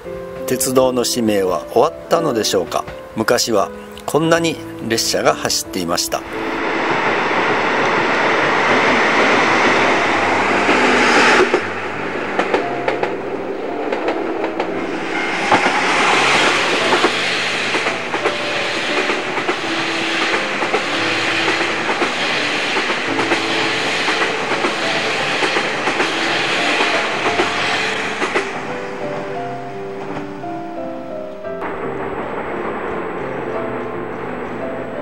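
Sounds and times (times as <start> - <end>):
train wheels clattering over joints: 7.7 - 29.3.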